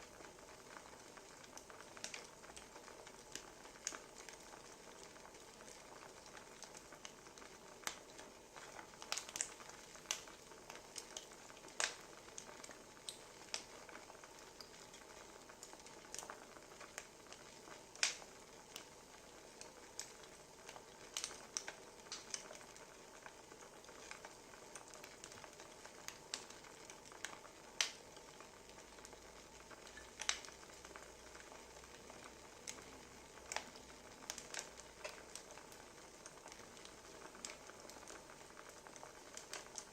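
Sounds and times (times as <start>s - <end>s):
wood fire crackling: 0.0s - 39.9s
firewood popping and snapping: 9.0s - 9.5s, 18.0s - 18.2s, 21.1s - 22.4s, 29.9s - 30.5s.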